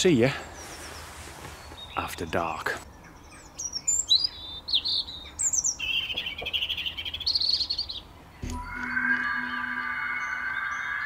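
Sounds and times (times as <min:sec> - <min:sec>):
songbirds chirping and trilling: 0:00.0 - 0:11.0
steady held music chord: 0:08.5 - 0:11.0.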